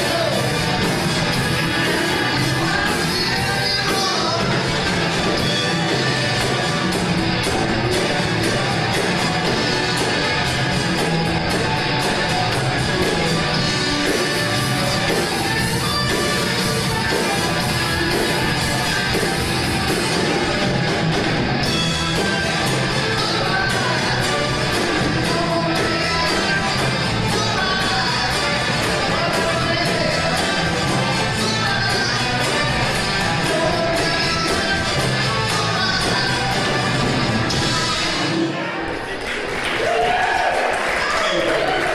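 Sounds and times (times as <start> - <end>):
person singing: 0.0 - 6.7, 21.7 - 38.7
steady drum beat: 0.0 - 38.3
live band playing: 0.0 - 40.0.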